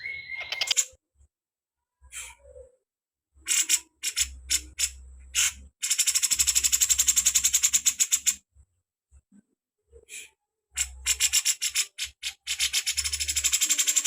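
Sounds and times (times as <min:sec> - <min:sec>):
songbird trilling and chipping: 0:00.0 - 0:00.8.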